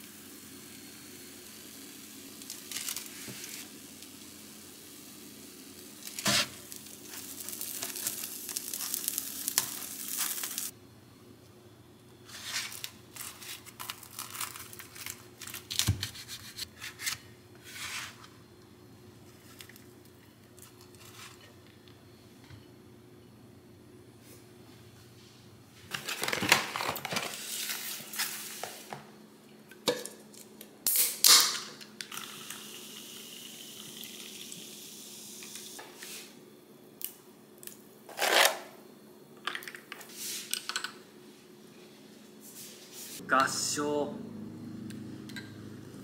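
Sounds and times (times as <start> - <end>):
wrap sizzling in frying pan: 0.0 - 10.7.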